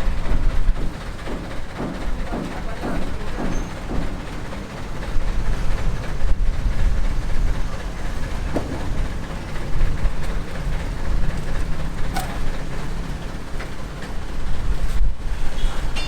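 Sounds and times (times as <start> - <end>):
vehicle rumble in motion: 3.8 - 16.0.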